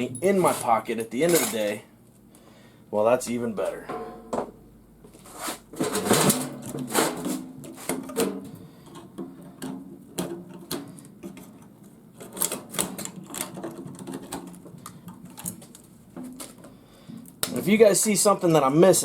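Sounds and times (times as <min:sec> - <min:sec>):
metal parts clattering: 0:00.2 - 0:01.8.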